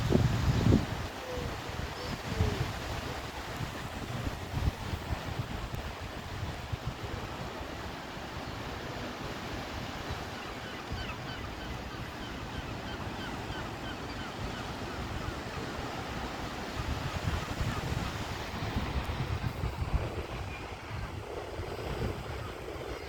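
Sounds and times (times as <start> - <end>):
wind buffeting microphone: 0.0 - 7.6, 15.0 - 23.0
surf washing ashore: 0.0 - 23.0
gulls calling: 10.0 - 19.4.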